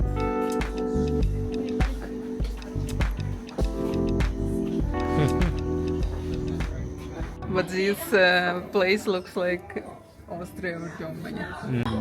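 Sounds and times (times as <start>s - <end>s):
plucked guitar music with bass: 2.8s - 7.4s.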